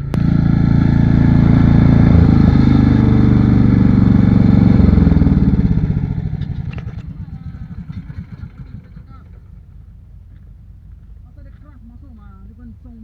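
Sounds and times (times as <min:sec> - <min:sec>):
large engine running: 0:00.0 - 0:10.1.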